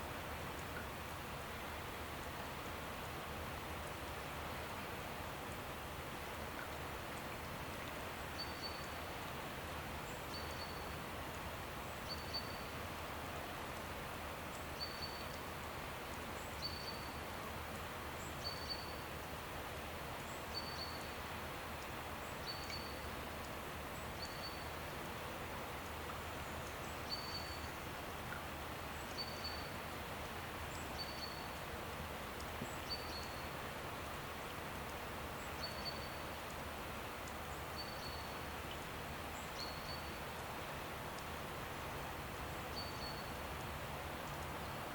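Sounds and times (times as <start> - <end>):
outdoor hiss: 0.0 - 44.9.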